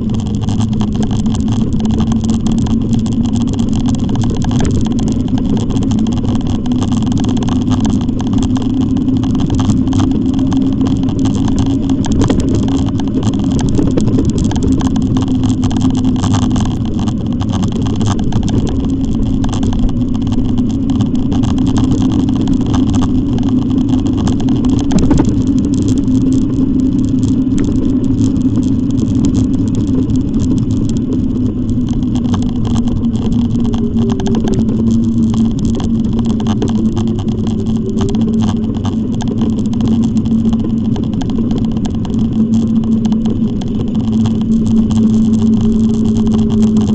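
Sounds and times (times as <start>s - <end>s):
electric bike motor hum: 0.0s - 46.9s
road noise: 0.0s - 46.9s
wind noise: 0.0s - 46.9s.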